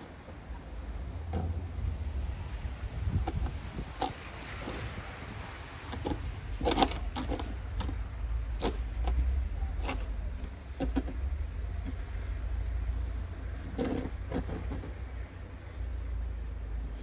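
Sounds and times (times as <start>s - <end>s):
wind on microphone: 1.0s - 9.7s.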